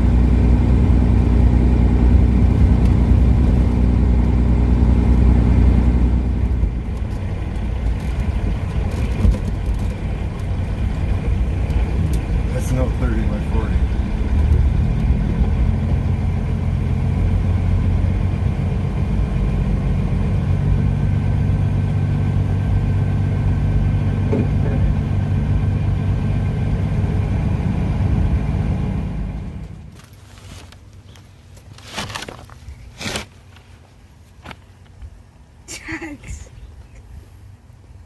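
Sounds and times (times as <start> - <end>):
diesel truck engine running: 0.0 - 30.1.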